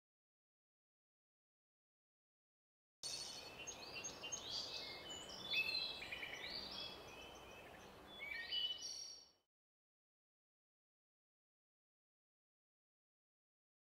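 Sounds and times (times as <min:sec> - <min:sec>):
birds chirping: 0:03.0 - 0:09.4.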